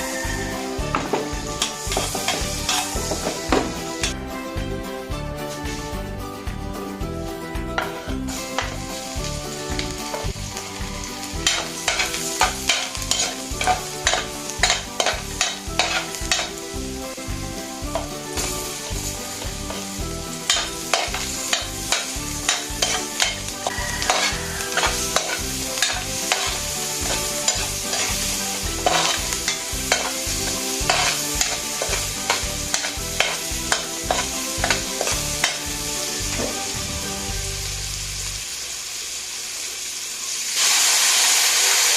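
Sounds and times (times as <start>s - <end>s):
food sizzling in a pan: 0.0s - 4.2s, 5.5s - 6.1s, 7.4s - 41.9s
utensil knocking against pan: 20.5s - 35.6s.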